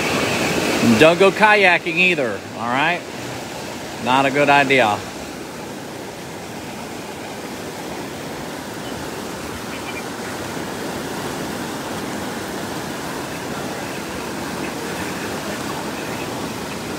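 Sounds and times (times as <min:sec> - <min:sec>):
floodwater rushing: 0:00.0 - 0:16.9.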